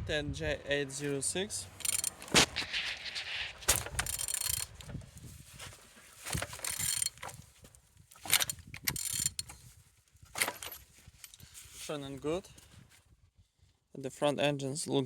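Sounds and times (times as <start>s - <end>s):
engine turned over by hand clicking: 1.7s - 2.7s, 3.6s - 7.5s, 8.2s - 9.6s, 10.4s - 11.3s.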